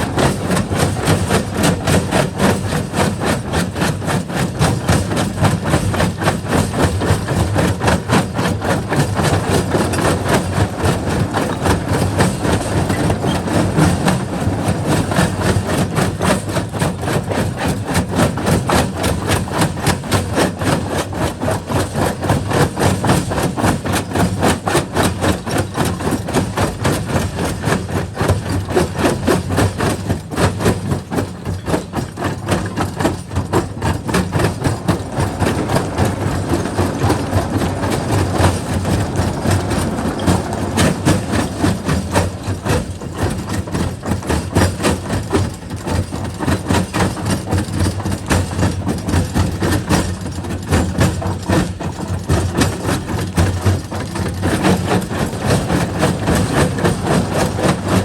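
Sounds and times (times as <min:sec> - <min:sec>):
crusher machine running: 0:32.5 - 0:44.3.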